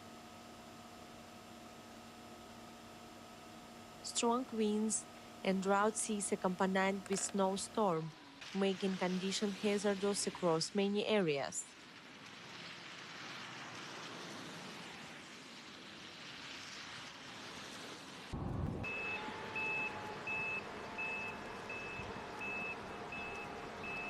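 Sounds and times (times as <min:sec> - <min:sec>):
outdoor rushing hiss: 0:00.7 - 0:24.0
low engine hum: 0:18.3 - 0:24.0
reversing alarm beeping: 0:18.8 - 0:24.0.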